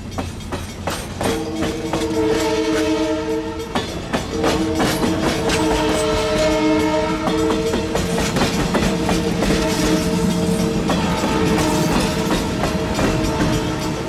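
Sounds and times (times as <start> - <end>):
wheels clattering on rail joints: 0.0 - 14.0
train horn chord: 1.2 - 14.0.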